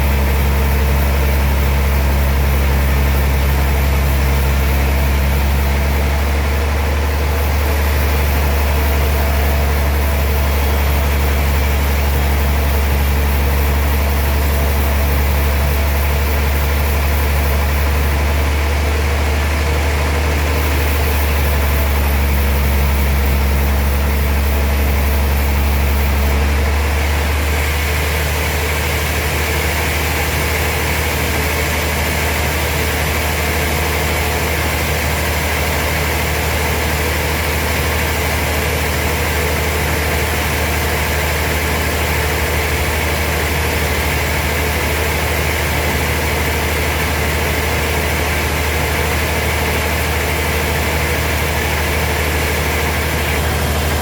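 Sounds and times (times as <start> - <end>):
sawmill machinery humming: 0.0 - 54.0.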